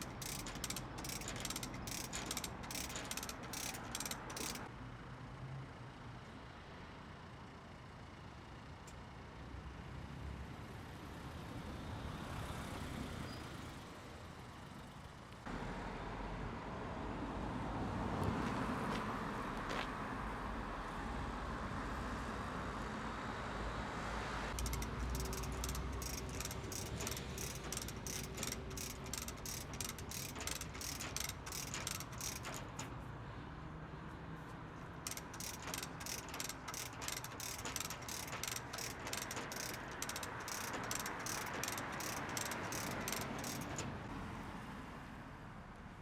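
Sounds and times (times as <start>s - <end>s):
chain block ratchet clicking: 0.0s - 4.7s, 24.5s - 32.9s, 35.0s - 44.0s
mechanical background noise: 0.0s - 4.7s, 24.5s - 33.1s, 34.8s - 44.1s.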